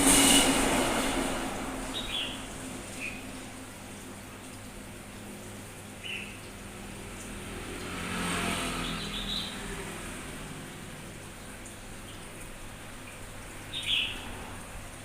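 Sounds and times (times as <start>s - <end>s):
vehicle passing: 0.0s - 3.6s, 6.5s - 12.1s, 12.8s - 15.0s
bird chirps: 2.0s - 2.4s, 6.0s - 6.4s, 13.7s - 14.2s.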